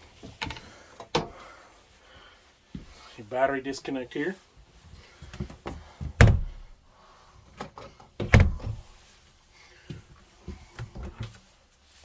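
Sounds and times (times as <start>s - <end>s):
door thunks: 6.2s - 6.7s, 8.2s - 8.9s.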